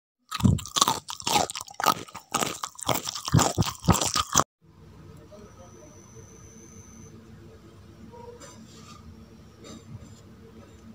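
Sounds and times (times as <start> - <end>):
crunching and chewing crisp food: 0.2 - 4.5.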